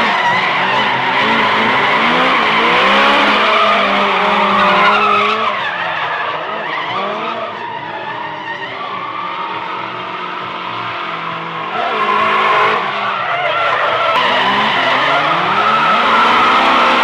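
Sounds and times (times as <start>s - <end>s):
car engine revving hard: 0.0s - 5.4s, 9.9s - 13.1s, 14.2s - 17.0s.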